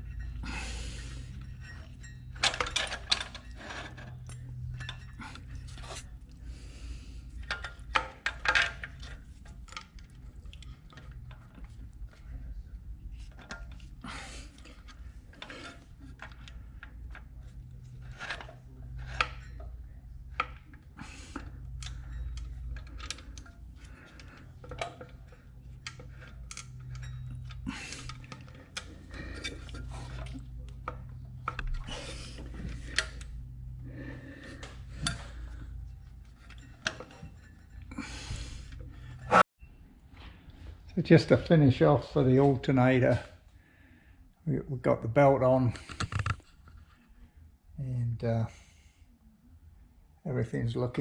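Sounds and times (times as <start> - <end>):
tools clinking on metal parts: 0.0 - 6.0, 7.4 - 11.5, 14.5 - 33.3, 34.4 - 39.4
steady low hum: 0.0 - 50.9.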